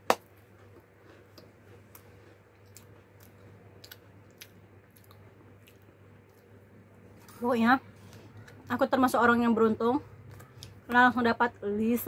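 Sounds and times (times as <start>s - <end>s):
person chewing a cookie: 0.2s - 8.6s.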